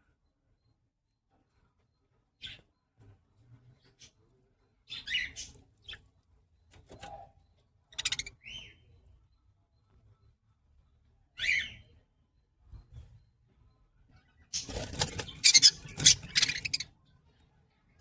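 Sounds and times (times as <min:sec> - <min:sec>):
budgerigars chirping: 0:08.0 - 0:08.7, 0:14.5 - 0:16.9.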